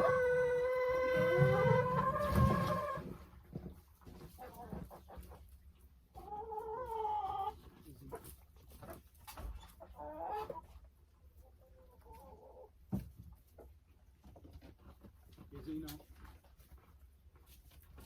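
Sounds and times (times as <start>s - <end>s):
hens calling: 0.0s - 3.0s.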